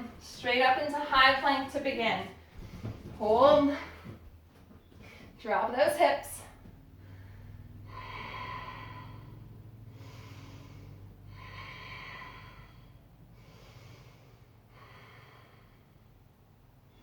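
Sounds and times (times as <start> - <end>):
woman breathing hard: 6.9 - 16.4.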